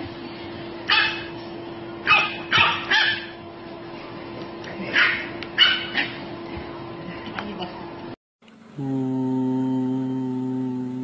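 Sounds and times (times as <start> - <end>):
puppy yapping: 2.1 - 3.4, 4.9 - 6.2.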